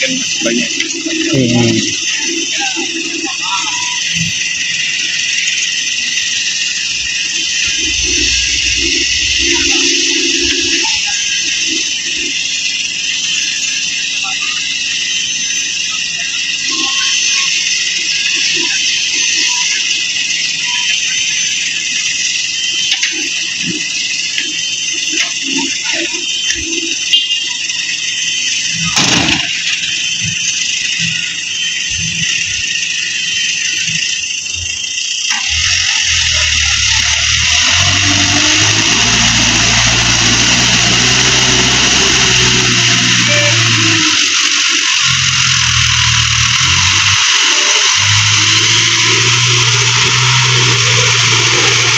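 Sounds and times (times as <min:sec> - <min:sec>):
loud high-pitched hiss: 0:00.0 - 0:20.7, 0:31.0 - 0:51.9
diesel engine idling: 0:04.6 - 0:12.3, 0:35.4 - 0:51.9
loud even hiss: 0:35.3 - 0:51.9.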